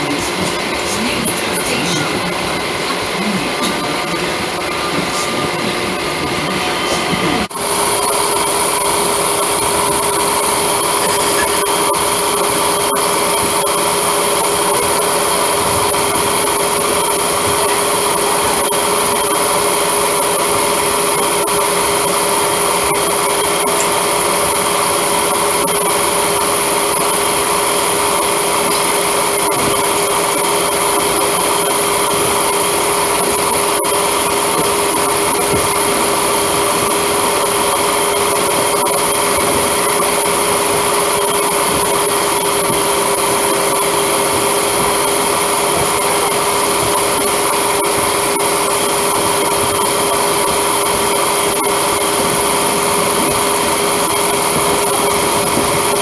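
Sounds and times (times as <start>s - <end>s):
steady grinding whine: 0.0s - 56.0s
train wheels on rails: 0.0s - 56.0s.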